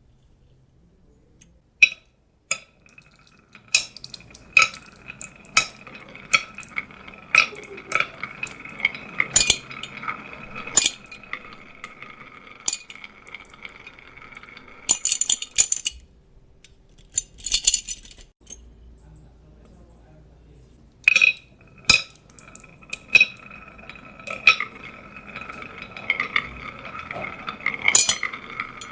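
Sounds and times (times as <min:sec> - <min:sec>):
marbles clacking on track: 0:01.8 - 0:16.0, 0:21.1 - 0:28.9
marbles rolling on wooden track: 0:02.5 - 0:16.1, 0:21.0 - 0:28.9.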